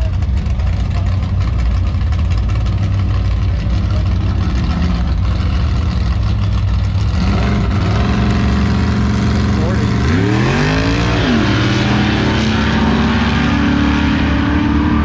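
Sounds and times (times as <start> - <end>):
drag car engine idling: 0.0 - 7.2
engine revving higher: 7.0 - 15.0.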